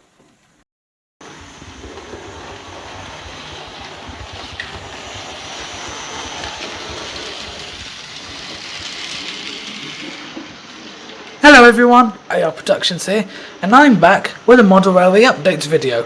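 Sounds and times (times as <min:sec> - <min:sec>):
model train motor whirr: 0:01.2 - 0:10.6
wheels clattering on track: 0:01.3 - 0:10.9.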